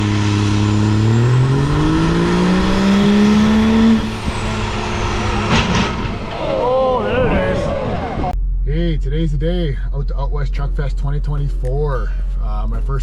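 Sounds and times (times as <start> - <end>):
vehicle engine accelerating: 0.0 - 8.4.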